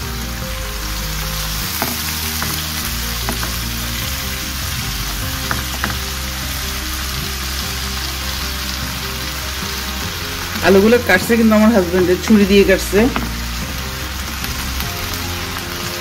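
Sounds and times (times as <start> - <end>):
potatoes sizzling in hot oil: 0.0 - 16.0.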